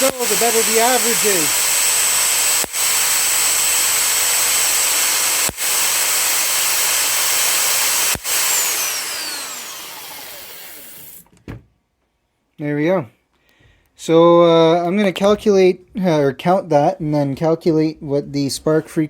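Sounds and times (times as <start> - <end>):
spark snapping: 0.0 - 1.7, 2.4 - 3.2, 4.6 - 11.0
electrostatic generator whirring: 0.0 - 11.2.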